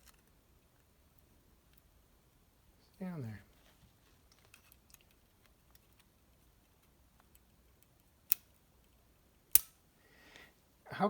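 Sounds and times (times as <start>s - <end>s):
sharp metal clicks: 9.5s - 9.8s.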